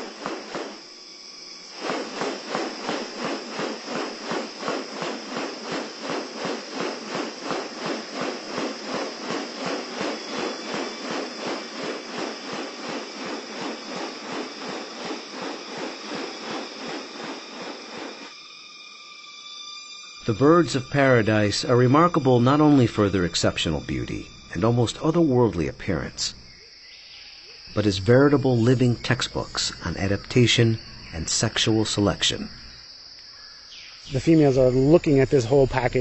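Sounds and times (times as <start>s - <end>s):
rapid rasping pulses: 0.0s - 18.8s
high-pitched insect drone: 0.0s - 36.0s.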